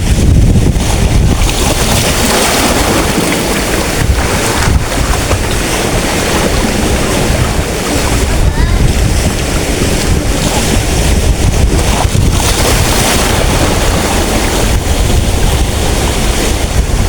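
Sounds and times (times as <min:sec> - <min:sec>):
waves breaking on beach: 0:00.0 - 0:17.0
wind buffeting microphone: 0:00.0 - 0:17.0.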